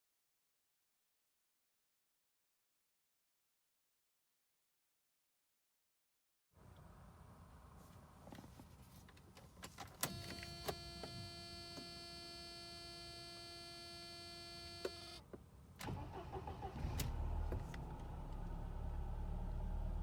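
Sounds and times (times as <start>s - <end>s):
car engine cranking and starting: 10.0s - 20.0s.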